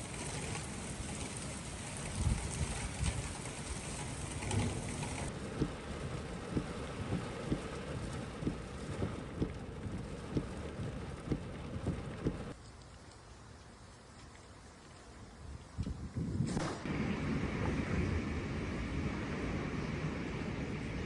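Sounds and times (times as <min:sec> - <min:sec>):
torrential rain pouring: 0:00.0 - 0:12.6
soft low thuds: 0:05.4 - 0:12.5.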